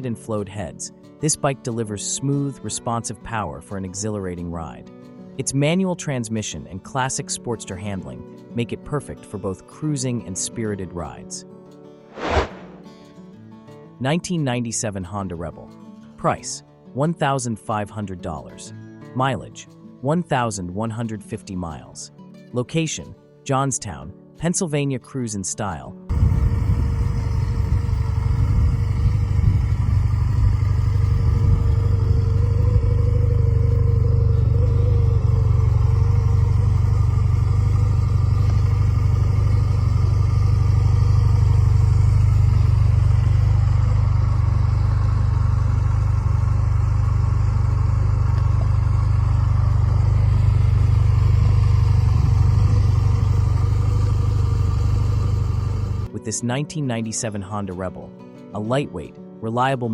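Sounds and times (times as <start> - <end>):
motorcycle engine running: 26.1 - 56.1.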